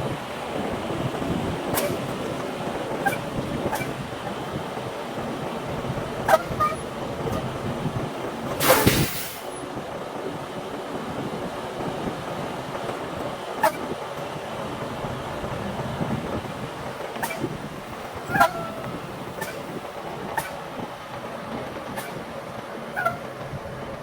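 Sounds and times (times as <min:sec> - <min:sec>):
truck engine running: 0:00.0 - 0:24.0
burst of hiss: 0:08.6 - 0:09.5.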